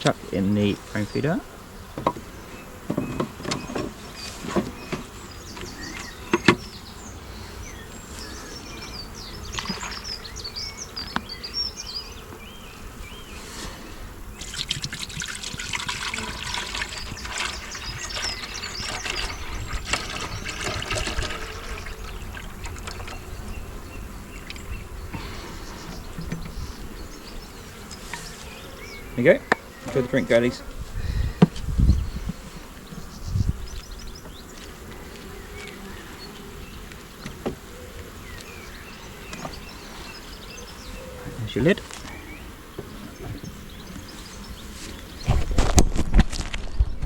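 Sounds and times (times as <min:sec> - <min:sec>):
bees humming: 0:00.0 - 0:45.8
liquid pouring: 0:14.4 - 0:23.2.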